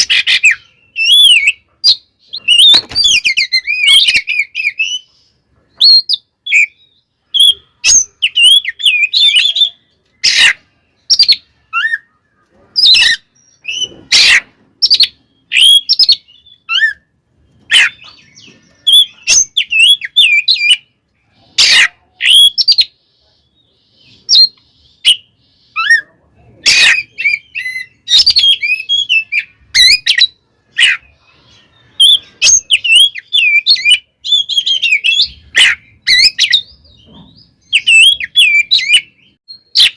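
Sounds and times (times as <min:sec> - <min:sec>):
bird whistled song: 0:00.0 - 0:12.2, 0:12.8 - 0:20.9, 0:21.6 - 0:26.1, 0:26.7 - 0:39.9
bird harsh notes: 0:00.0 - 0:39.9.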